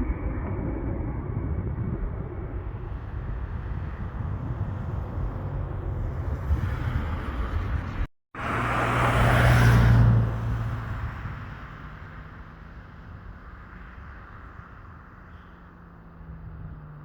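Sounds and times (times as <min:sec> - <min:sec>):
wind on microphone: 0:00.0 - 0:08.1
airliner engines rumbling: 0:00.0 - 0:09.3
aircraft passing by: 0:00.0 - 0:13.2.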